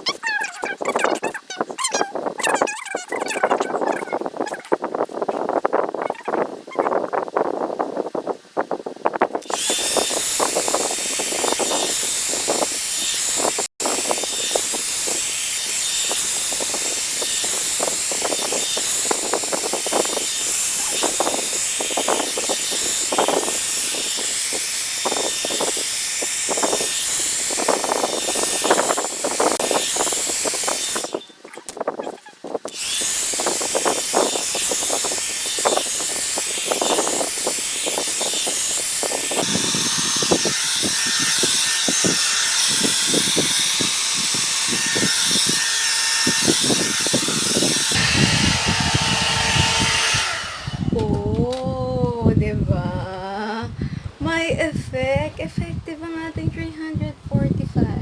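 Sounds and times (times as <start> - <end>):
hot-air brush blowing: 9.4 - 31.2, 32.7 - 51.4.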